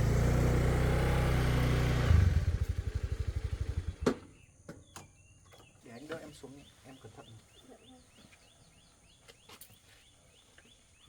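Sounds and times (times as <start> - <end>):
motorcycle engine running: 0.0 - 4.0.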